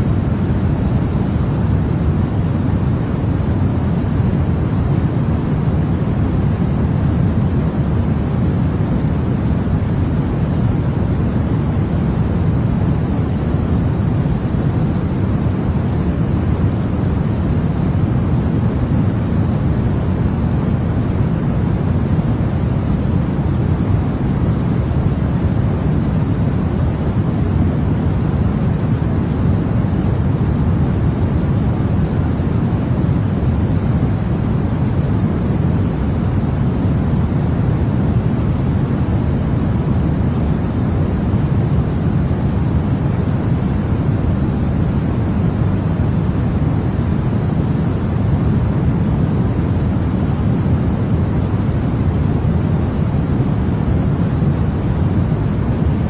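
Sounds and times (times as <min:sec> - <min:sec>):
deep white noise hiss: 0:00.0 - 0:56.0.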